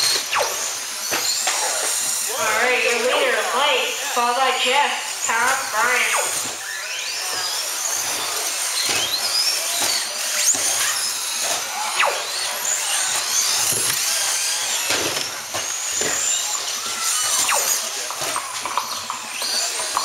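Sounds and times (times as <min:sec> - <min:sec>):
rc truck motors whining: 0:00.0 - 0:20.0.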